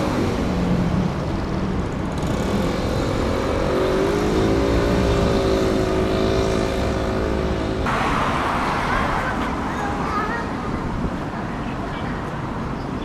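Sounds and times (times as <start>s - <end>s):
jet engines droning: 7.8s - 11.4s.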